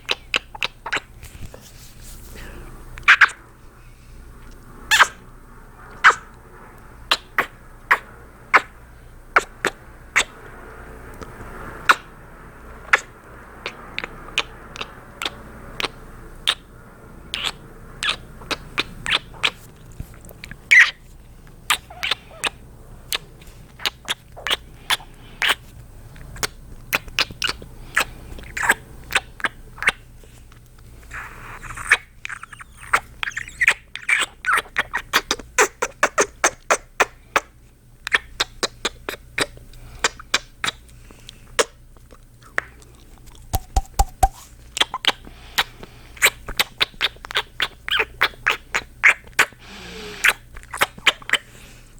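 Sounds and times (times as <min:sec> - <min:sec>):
wet kissing smacks: 0:00.0 - 0:01.1, 0:09.4 - 0:10.3, 0:12.9 - 0:16.6, 0:17.3 - 0:19.6, 0:21.7 - 0:23.2, 0:23.8 - 0:25.6, 0:26.3 - 0:30.0, 0:31.1 - 0:37.5, 0:38.1 - 0:40.8, 0:41.6 - 0:49.6, 0:50.2 - 0:51.4
breathing: 0:02.2 - 0:02.9, 0:03.6 - 0:04.4, 0:24.6 - 0:25.7, 0:27.8 - 0:28.6, 0:40.9 - 0:41.6, 0:45.2 - 0:46.2, 0:49.6 - 0:50.4, 0:51.4 - 0:51.9.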